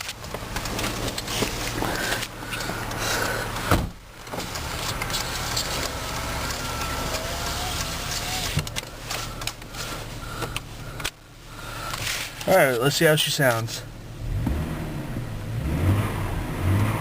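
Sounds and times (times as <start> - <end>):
engine idling: 0.0 - 14.2
loud thump: 3.7 - 4.0.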